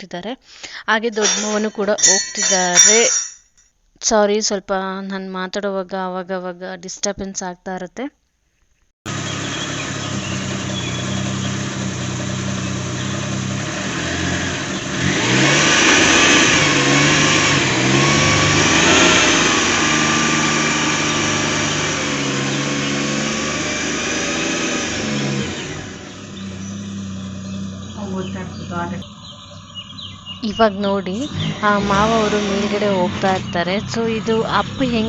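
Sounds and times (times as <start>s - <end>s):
vehicle engine revving: 9.1s - 35.0s.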